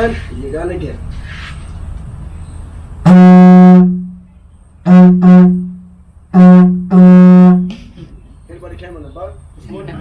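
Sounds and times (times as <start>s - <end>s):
didgeridoo toots: 3.0s - 4.2s, 4.8s - 7.8s.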